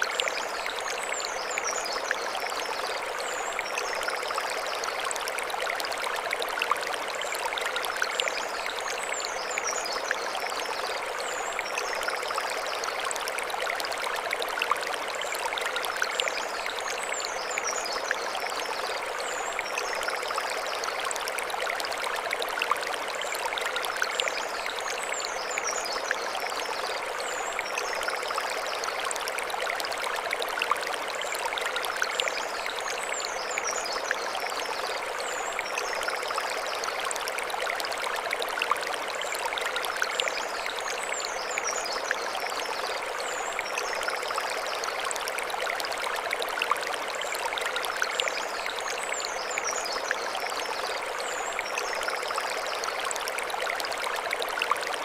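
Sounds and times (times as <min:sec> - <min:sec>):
stream running over stones: 0:00.0 - 0:55.0.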